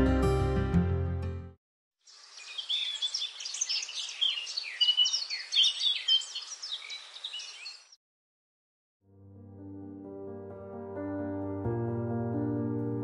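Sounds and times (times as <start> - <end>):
forest ambience hiss: 2.0 - 8.0
birds chirping and singing: 2.1 - 8.0.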